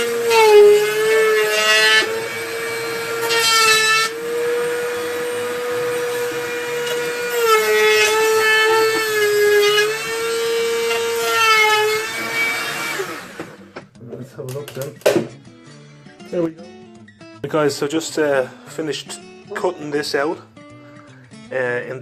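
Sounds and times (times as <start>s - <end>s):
rotary tool high whine: 0.0s - 13.6s.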